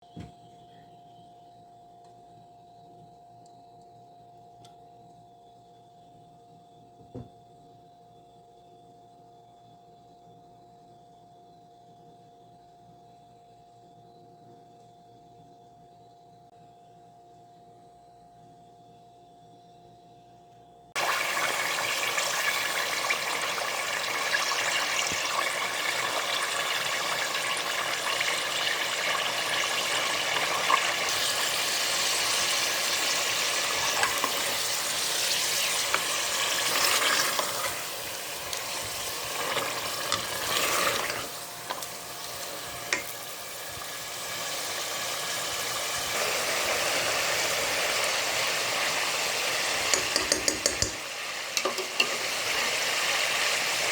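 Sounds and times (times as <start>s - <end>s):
food sizzling in hot oil: 21.0s - 53.9s.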